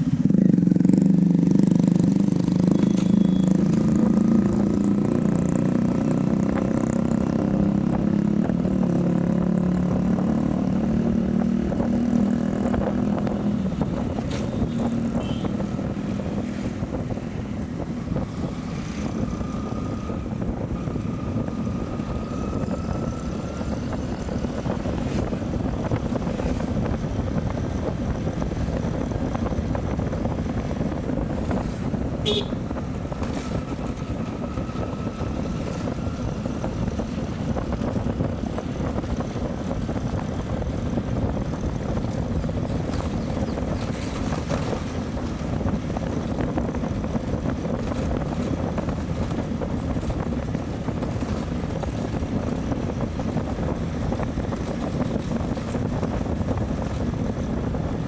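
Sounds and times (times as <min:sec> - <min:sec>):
motorcycle engine running: 0:00.0 - 0:58.0
road rumble: 0:00.0 - 0:58.0
wind buffeting microphone: 0:00.0 - 0:58.0.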